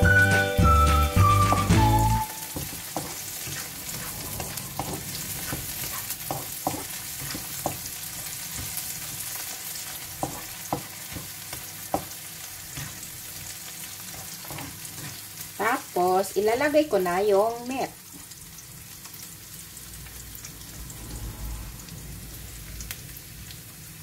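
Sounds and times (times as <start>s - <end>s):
food sizzling in oil: 0.0s - 24.0s
spatula tapping a pan: 2.5s - 3.7s, 6.3s - 9.2s, 10.2s - 12.2s.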